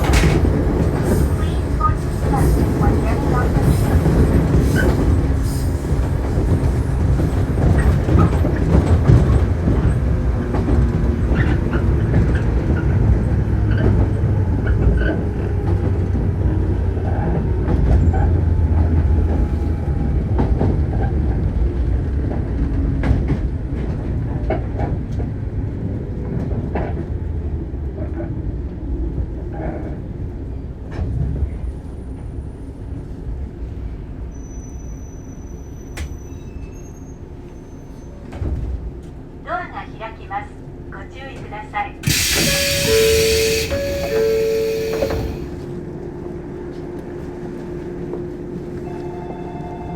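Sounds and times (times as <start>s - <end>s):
wheels clacking over rail joints: 0.0s - 5.4s
train wheels rumbling: 0.0s - 28.3s, 41.3s - 48.8s.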